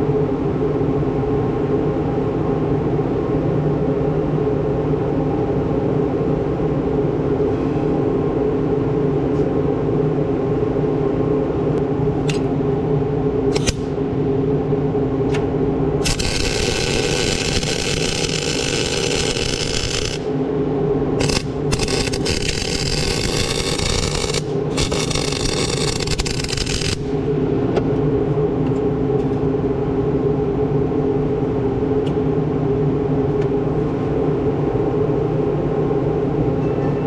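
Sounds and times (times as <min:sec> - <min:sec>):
arc welding crackling hiss: 0:16.0 - 0:20.3, 0:21.2 - 0:27.2
motor humming: 0:16.0 - 0:20.3, 0:21.2 - 0:27.1.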